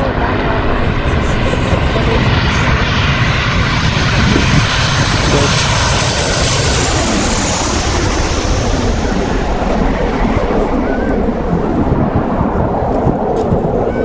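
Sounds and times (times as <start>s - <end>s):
airplane engine flying past: 0.0s - 14.0s.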